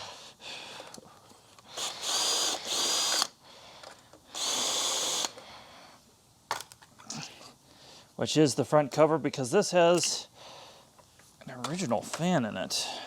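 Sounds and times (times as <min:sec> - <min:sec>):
power drill whining: 0:01.8 - 0:03.4, 0:04.3 - 0:05.4.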